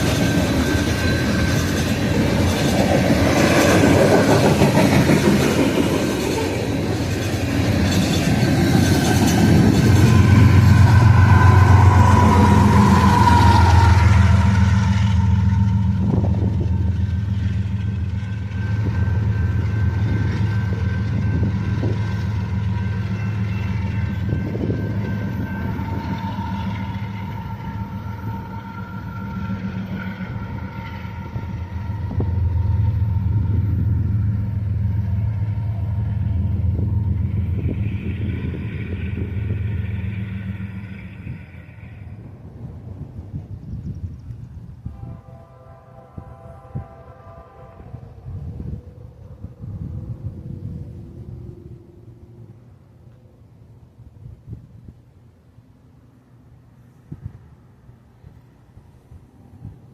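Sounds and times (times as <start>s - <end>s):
freight train rumble: 0.0s - 59.9s
locomotive engine drone: 0.0s - 59.9s
faint high squeal: 9.8s - 42.3s.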